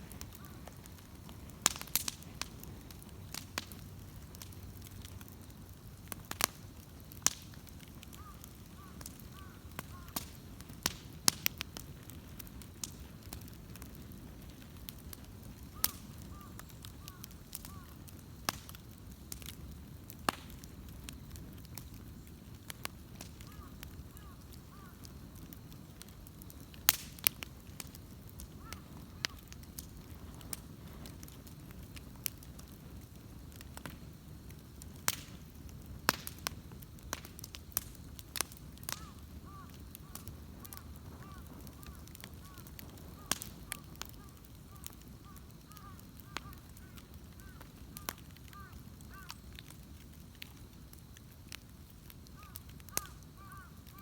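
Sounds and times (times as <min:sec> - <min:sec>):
bonfire crackling and popping: 0:00.0 - 0:54.0
low rumble of flames: 0:00.0 - 0:54.0
faint bird calls: 0:08.1 - 0:10.2, 0:15.6 - 0:18.1, 0:23.4 - 0:25.1, 0:28.4 - 0:29.6, 0:38.8 - 0:49.6, 0:52.4 - 0:54.0.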